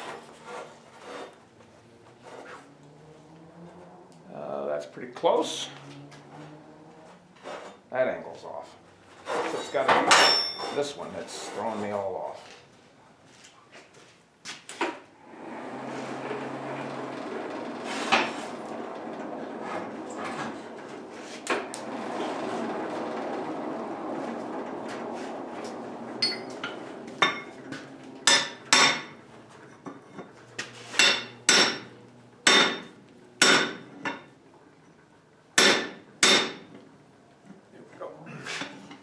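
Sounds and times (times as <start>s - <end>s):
steady rushing noise: 15.2s - 29.1s
hammer striking steel rod: 26.2s - 26.6s, 28.3s - 29.1s, 30.9s - 31.9s, 32.5s - 33.8s, 35.6s - 36.6s.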